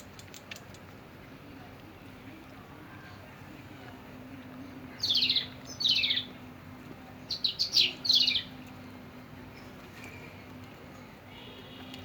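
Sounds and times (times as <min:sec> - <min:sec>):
birds chirping: 0:04.9 - 0:06.4, 0:07.2 - 0:08.6.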